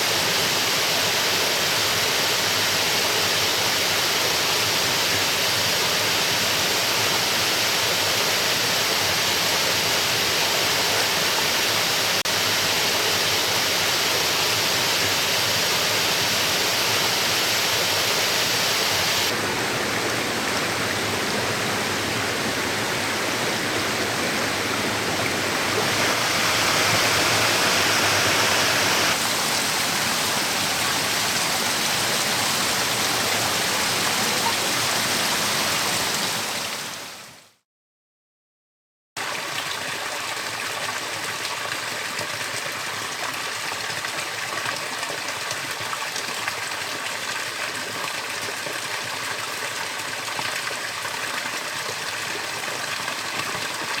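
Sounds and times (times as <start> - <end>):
waterfall rushing: 0.0 - 37.1.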